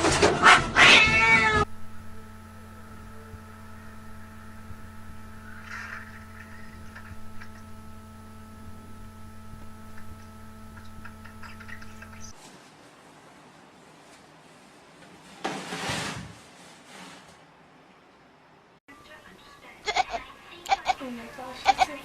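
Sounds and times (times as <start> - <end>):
cat meowing loudly: 0.7 - 1.7
steady low hum: 1.6 - 14.0.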